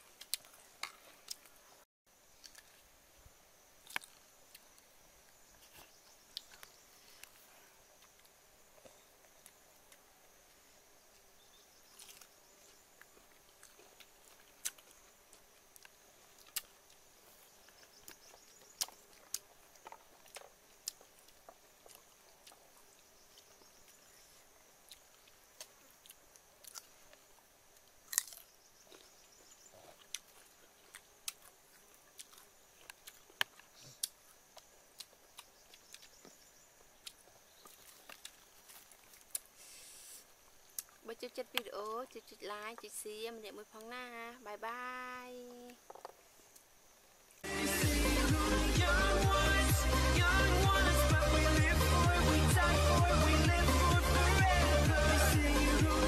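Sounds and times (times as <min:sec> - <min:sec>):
crunchy chewing of fruit: 0:00.0 - 0:03.0, 0:03.7 - 0:42.4.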